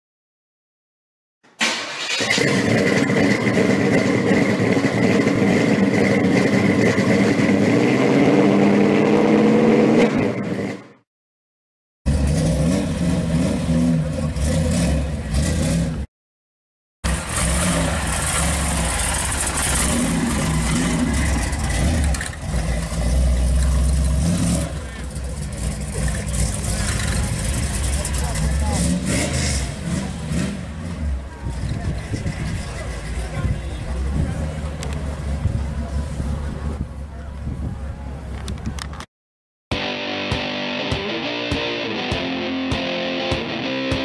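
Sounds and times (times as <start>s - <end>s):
car engine revving and idling: 2.3s - 10.8s, 12.1s - 16.1s, 17.0s - 36.9s.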